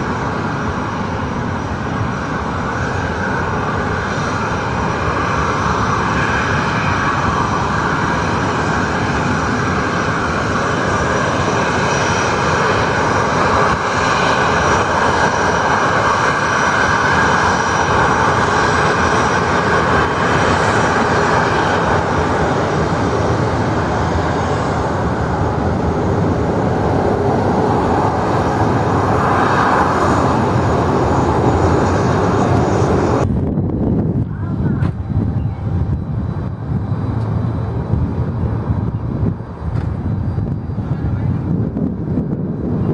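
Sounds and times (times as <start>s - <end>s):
airliner engines roaring: 0.0s - 42.9s.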